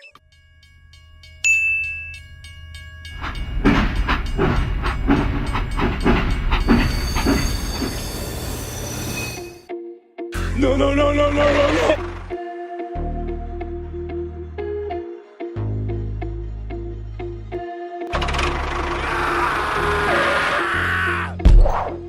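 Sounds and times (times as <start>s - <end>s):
train rumble: 2.1s - 9.6s
train wheels clacking on rails: 3.1s - 9.1s.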